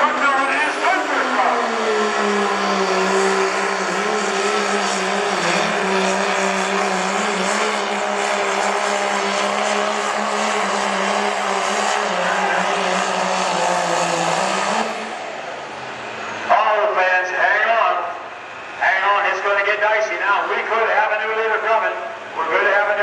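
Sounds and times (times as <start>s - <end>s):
truck engine at high revs: 0.0s - 16.9s.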